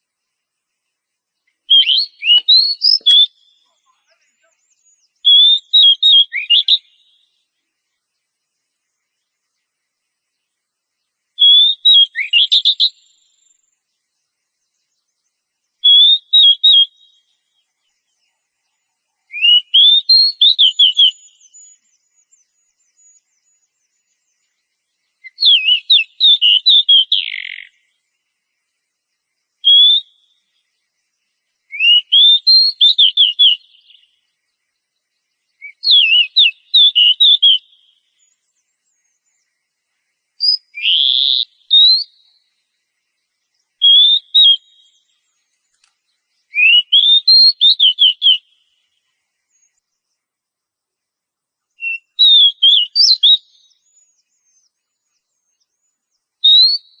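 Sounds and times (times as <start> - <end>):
bird singing whistled phrases: 1.6 - 7.4, 11.4 - 13.7, 15.8 - 17.6, 19.2 - 24.5, 25.2 - 27.9, 29.6 - 30.6, 31.7 - 34.2, 35.6 - 39.4, 40.4 - 42.4, 43.8 - 45.3, 46.5 - 48.8, 51.8 - 57.0.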